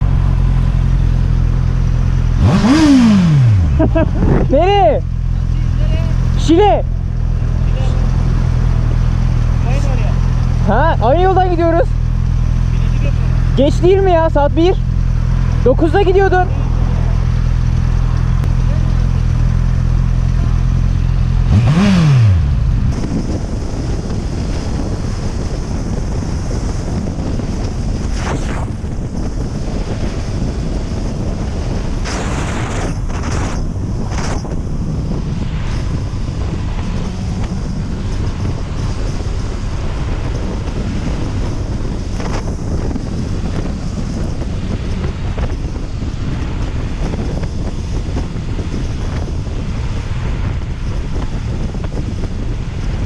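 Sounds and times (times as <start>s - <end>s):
motorcycle engine revving: 0.0s - 53.0s
wind rushing over microphone: 0.0s - 53.0s.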